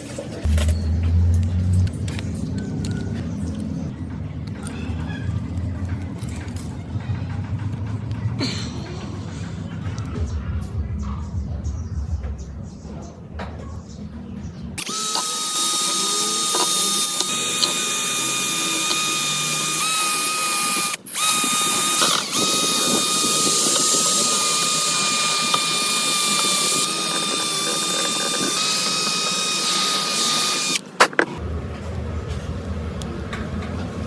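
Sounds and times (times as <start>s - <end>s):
power tool high whine: 14.8s - 30.9s
sharp clicks: 14.8s - 31.3s.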